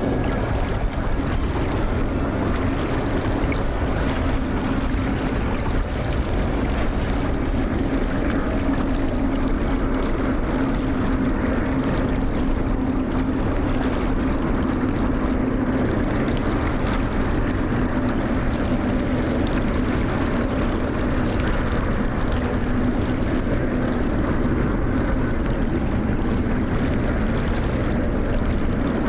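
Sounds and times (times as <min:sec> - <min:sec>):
jet engines droning: 0:00.0 - 0:13.8, 0:21.7 - 0:29.0.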